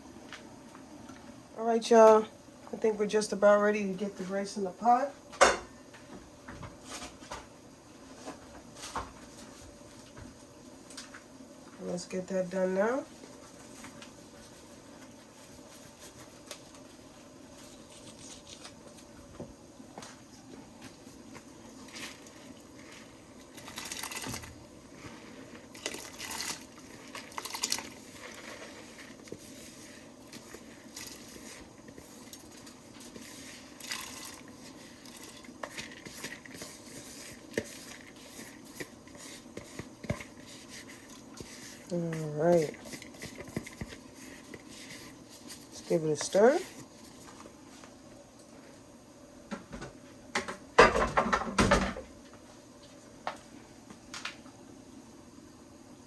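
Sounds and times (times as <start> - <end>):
pot simmering: 13.1 - 48.8.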